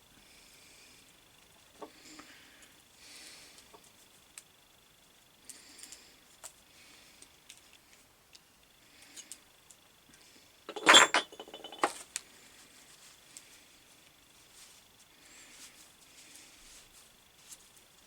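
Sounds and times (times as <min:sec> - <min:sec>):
metal clink: 0:10.7 - 0:12.0
small metal parts clicking: 0:10.7 - 0:12.0.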